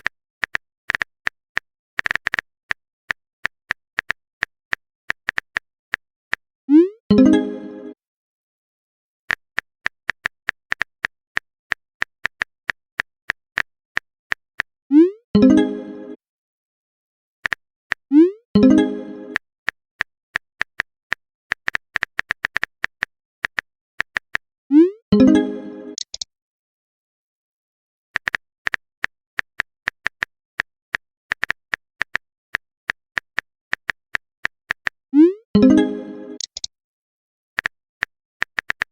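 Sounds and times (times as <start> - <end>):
keyboard key clicks: 0.0 - 2.5, 26.0 - 26.2, 36.4 - 36.7.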